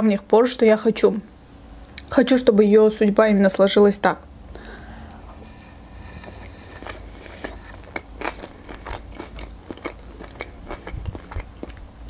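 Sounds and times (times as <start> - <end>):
chewing with mouth clicks: 4.5 - 11.9.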